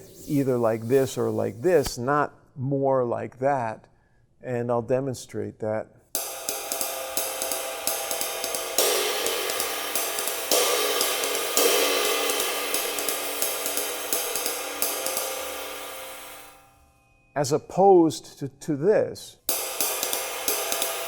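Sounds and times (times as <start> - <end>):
ride cymbal swing pattern: 6.2 - 17.3, 19.4 - 21.0.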